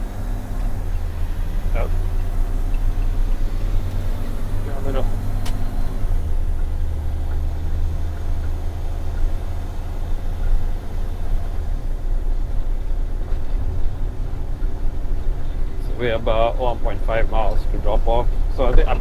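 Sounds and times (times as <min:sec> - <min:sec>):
truck engine and road noise: 0:00.0 - 0:19.0
sharp click: 0:05.4 - 0:05.7.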